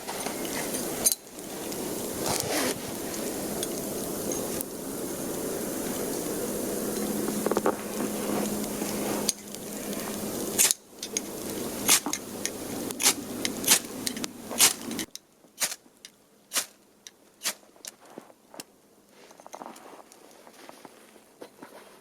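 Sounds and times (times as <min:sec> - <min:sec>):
steady rushing noise: 0:00.0 - 0:15.1
dry wood cracking: 0:00.0 - 0:18.8.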